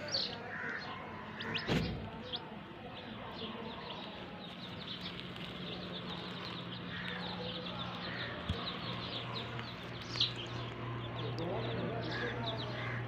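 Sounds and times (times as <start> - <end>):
chicks peeping: 0.0 - 13.0
dull thump: 1.6 - 2.1.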